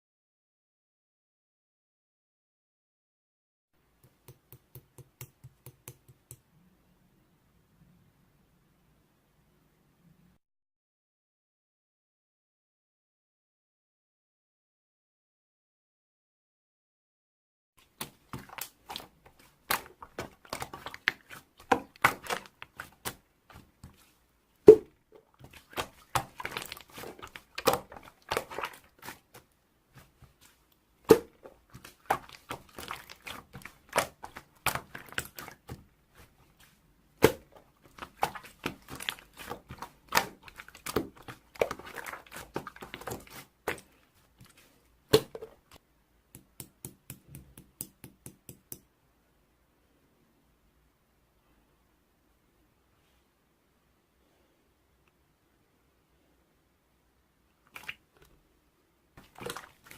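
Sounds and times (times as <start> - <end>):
slime thuds: 18.0 - 29.4, 30.0 - 36.3, 37.2 - 43.9, 45.1 - 45.6.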